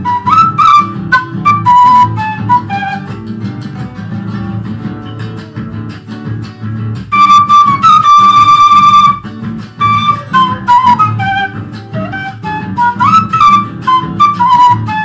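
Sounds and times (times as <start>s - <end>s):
flute playing quick melody: 0.0s - 3.9s, 7.1s - 15.0s
plucked guitar: 0.0s - 15.0s.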